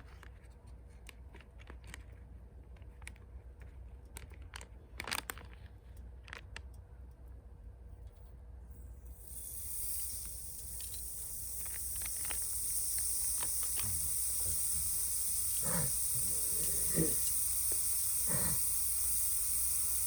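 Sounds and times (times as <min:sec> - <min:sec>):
food sizzling in a hot pan: 0:09.2 - 0:20.0.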